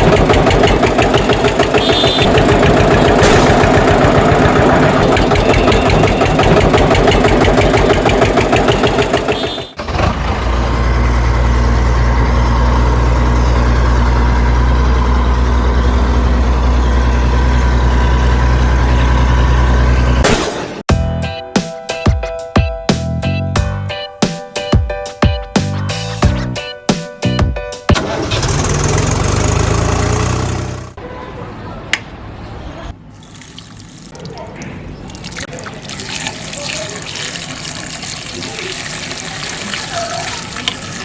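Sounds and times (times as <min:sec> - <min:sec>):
engine running: 0:00.0 - 0:20.2, 0:27.9 - 0:31.0.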